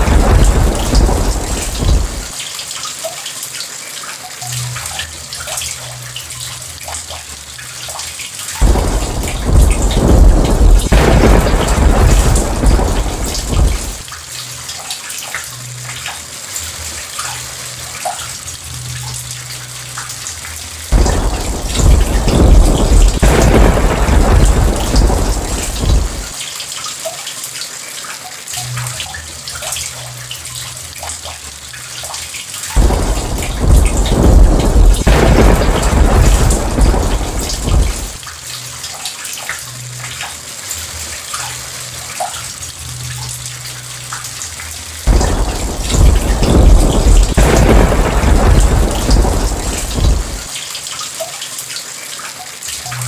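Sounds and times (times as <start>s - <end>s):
thunder rolling: 0.0s - 2.4s, 8.6s - 14.1s, 20.9s - 26.4s, 32.8s - 38.2s, 45.1s - 50.5s
steady rain falling: 0.0s - 53.0s.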